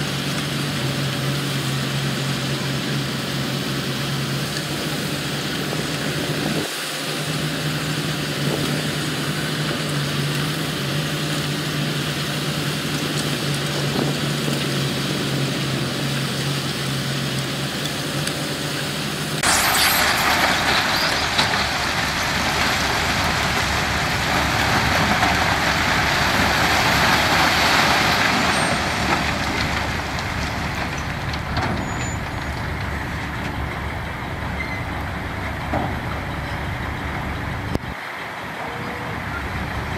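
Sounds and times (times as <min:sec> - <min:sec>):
construction machinery engines humming: 0:00.0 - 0:39.9
hissing rumble: 0:19.0 - 0:39.9.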